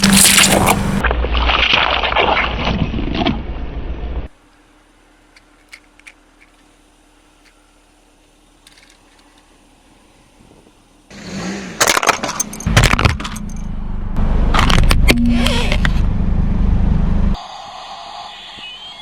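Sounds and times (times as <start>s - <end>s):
rolling car rumble: 0.0s - 1.0s, 3.2s - 17.4s
objects cracking under car tyre: 0.0s - 3.4s, 11.8s - 13.6s.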